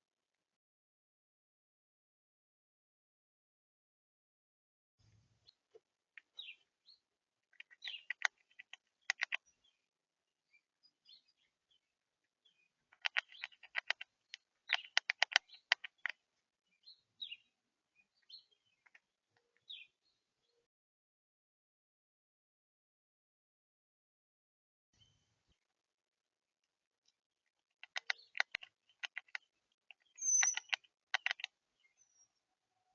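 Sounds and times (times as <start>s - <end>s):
small birds chirping: 5.4s - 20.7s, 27.0s - 32.9s
rapid sharp clicking: 7.6s - 9.4s, 13.0s - 16.2s, 27.8s - 31.5s.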